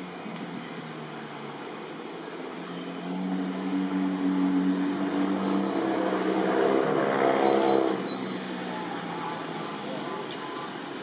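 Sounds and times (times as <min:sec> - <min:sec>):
vehicle engine humming: 0:00.0 - 0:11.0
brief high squeal: 0:02.2 - 0:03.3, 0:07.4 - 0:08.6.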